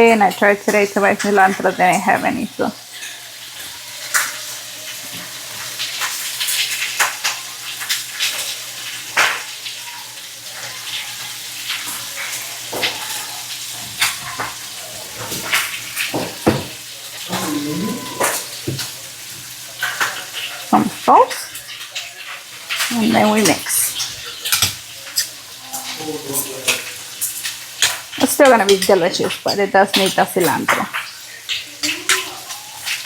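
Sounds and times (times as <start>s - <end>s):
meat sizzling in a pan: 0.0s - 33.0s
utensils knocking on cookware: 12.7s - 21.6s, 23.0s - 33.0s.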